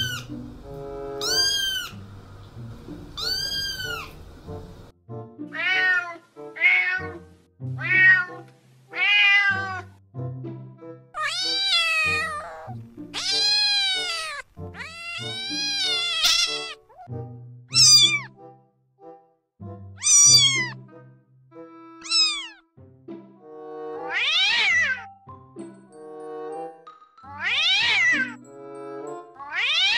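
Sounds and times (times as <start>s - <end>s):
cat meowing: 0.0s - 0.4s, 1.2s - 2.0s, 3.2s - 4.2s, 5.5s - 7.2s, 7.8s - 9.9s, 11.2s - 17.1s, 17.7s - 18.3s, 20.0s - 20.8s, 22.0s - 22.6s, 24.1s - 25.1s, 27.3s - 28.4s, 29.4s - 29.9s
soft background music: 0.0s - 29.9s.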